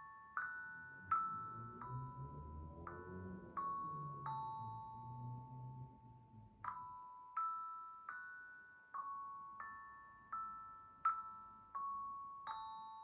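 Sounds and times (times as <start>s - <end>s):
steel tongue drum notes: 0.0s - 7.8s.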